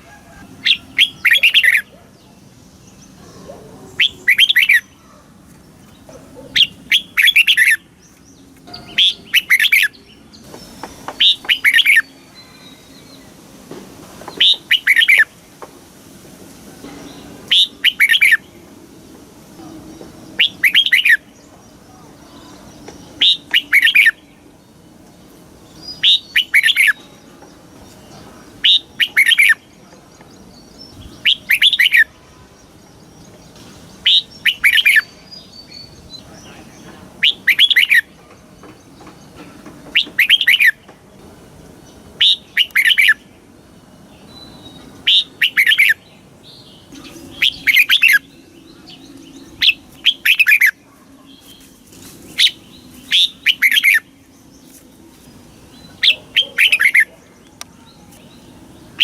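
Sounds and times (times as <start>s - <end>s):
bird singing whistled phrases: 4.0s - 4.9s, 20.4s - 21.3s, 31.0s - 32.2s, 37.2s - 38.1s, 44.3s - 46.0s, 46.9s - 50.8s, 52.4s - 54.1s.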